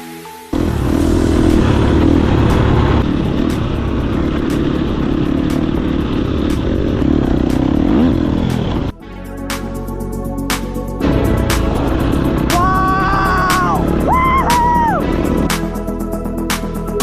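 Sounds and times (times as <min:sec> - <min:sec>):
dirt bike engine revving: 0:00.5 - 0:09.0, 0:11.7 - 0:15.5.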